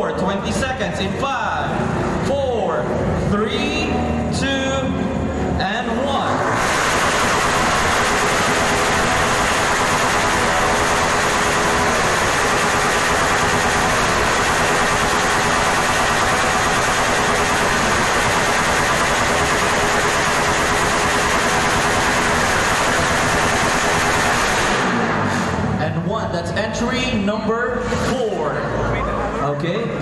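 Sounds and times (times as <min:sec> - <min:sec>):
motorcycle engine running: 0:05.1 - 0:25.9.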